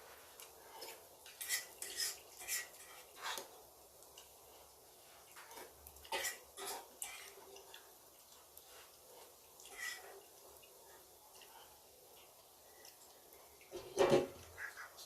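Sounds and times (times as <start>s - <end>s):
cutlery clinking on dishes: 0.8s - 3.5s, 5.3s - 7.8s.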